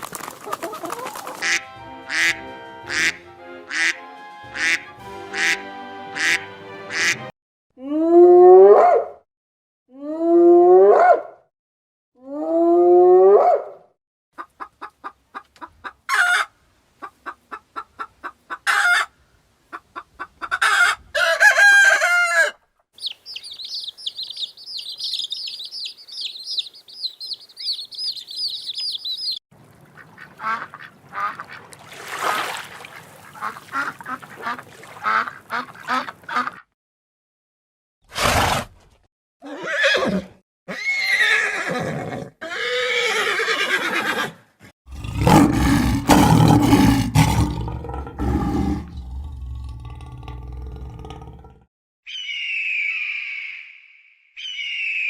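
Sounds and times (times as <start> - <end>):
ducks and geese calling: 0.4 - 4.0, 4.6 - 5.6, 6.2 - 7.3, 19.7 - 31.8, 32.9 - 36.6
quacking: 0.5 - 4.0, 4.6 - 5.6, 6.2 - 7.3, 30.0 - 31.7, 32.9 - 36.7
high-pitched peeping chatter: 23.0 - 29.4.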